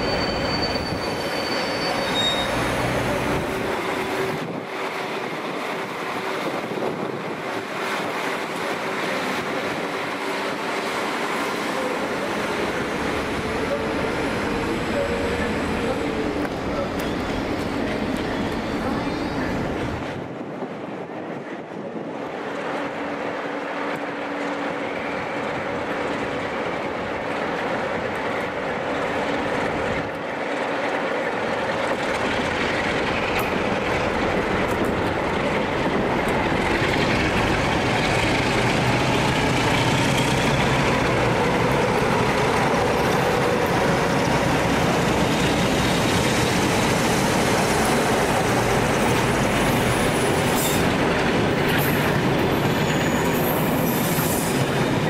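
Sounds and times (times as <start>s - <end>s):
train wheel squeal: 0.0s - 4.4s, 16.7s - 19.7s, 42.6s - 55.0s
train running noise: 0.0s - 55.0s.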